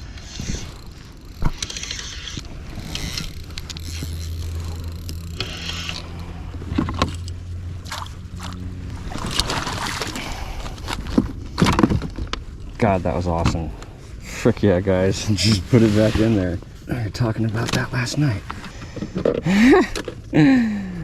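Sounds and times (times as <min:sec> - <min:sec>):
gear knocking and scraping: 0:00.0 - 0:09.5
low motor hum: 0:00.0 - 0:14.0.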